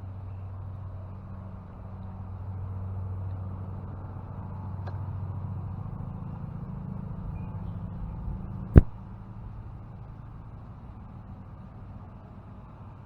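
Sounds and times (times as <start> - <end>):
sharp knock: 8.8 - 9.0.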